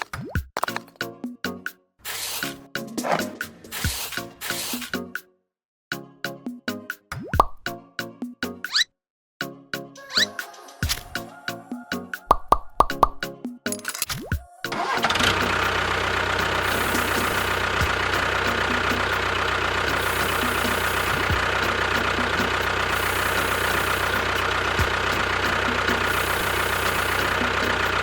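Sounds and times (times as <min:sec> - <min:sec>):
engine running with even knock: 0:14.8 - 0:28.0.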